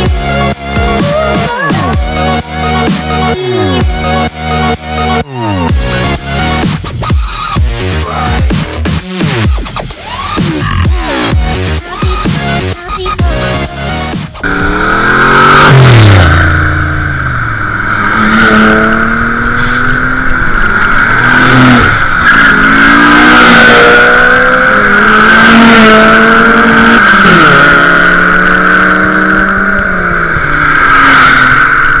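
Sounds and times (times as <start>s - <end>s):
car engine revving: 0.0s - 32.0s
high tyre squeal: 14.4s - 32.0s.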